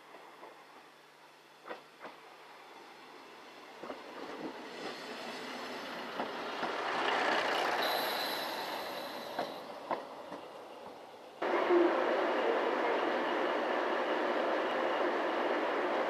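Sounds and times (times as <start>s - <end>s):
diesel railcar rumbling: 0.0s - 13.4s
thin high whine: 7.8s - 9.6s.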